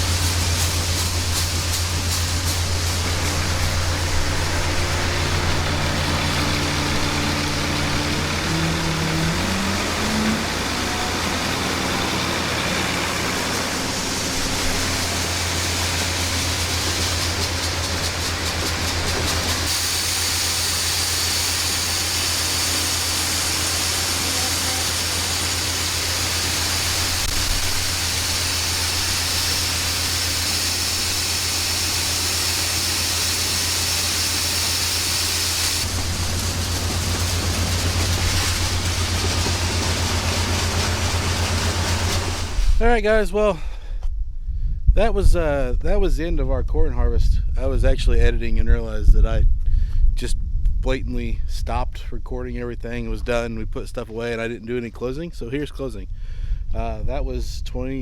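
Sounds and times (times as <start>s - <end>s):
vehicle engine revving: 0.0s - 42.8s.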